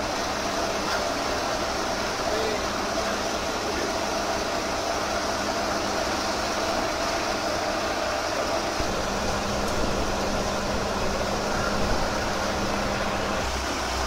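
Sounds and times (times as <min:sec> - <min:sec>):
heavy machinery engine droning: 0:00.0 - 0:14.0.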